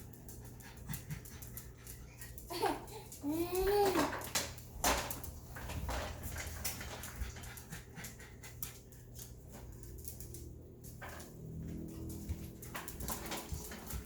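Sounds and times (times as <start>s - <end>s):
dog panting: 0.0s - 2.7s, 6.7s - 9.2s.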